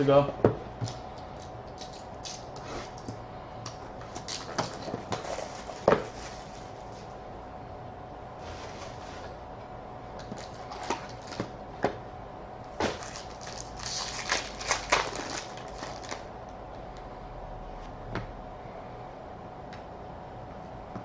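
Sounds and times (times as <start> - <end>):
packaging crinkling and tearing: 10.2 - 11.4, 12.8 - 16.3.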